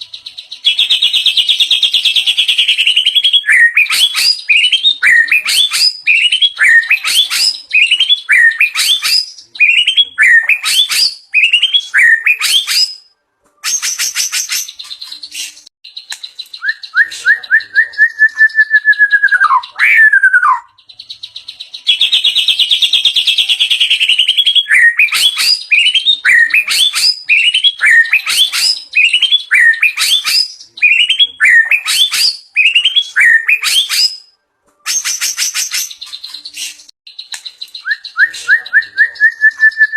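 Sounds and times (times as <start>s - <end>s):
bird chirps: 0.0s - 39.9s
bird singing: 0.0s - 39.9s
whistled bird phrase: 0.2s - 39.9s
bird clicks: 16.1s - 16.3s, 37.2s - 37.8s.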